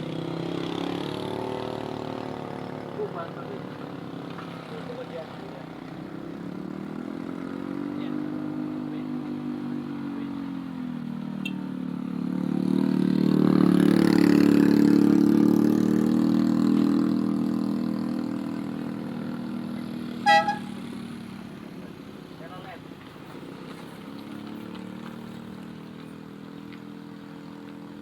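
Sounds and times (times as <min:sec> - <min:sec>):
vehicle engine labouring uphill: 0:00.0 - 0:28.0
loud high tone: 0:20.3 - 0:20.8.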